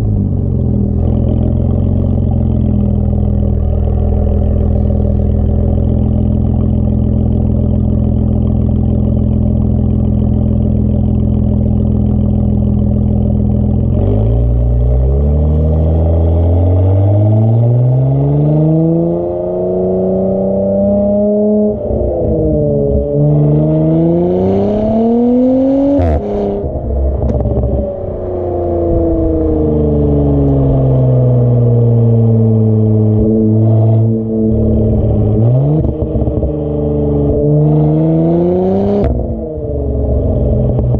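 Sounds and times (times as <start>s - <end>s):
exhaust crack: 0.0s - 17.5s, 24.7s - 37.7s, 39.0s - 40.9s
car engine idling and revving: 0.0s - 40.9s.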